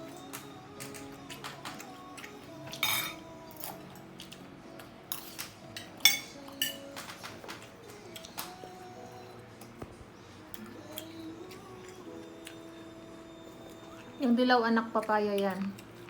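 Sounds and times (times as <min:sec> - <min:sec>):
soft background music: 0:00.0 - 0:16.0
cutlery and dishes clinking: 0:00.2 - 0:04.4, 0:05.1 - 0:08.6.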